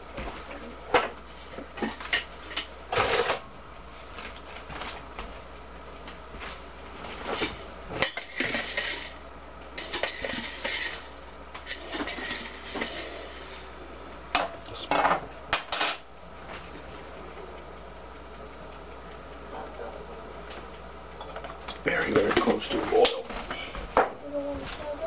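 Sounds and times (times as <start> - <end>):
metal utensil scraping a pot: 9.8 - 11.1, 11.7 - 13.6.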